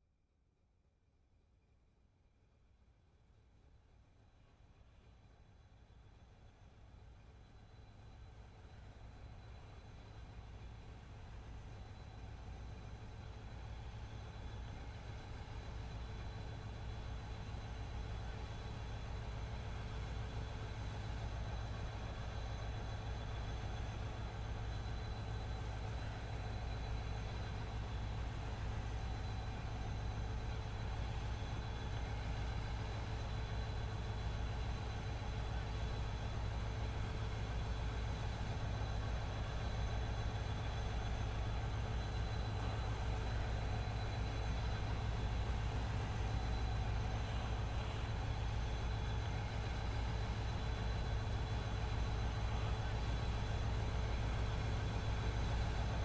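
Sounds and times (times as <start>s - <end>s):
diesel locomotive engine rumble: 6.8s - 56.0s.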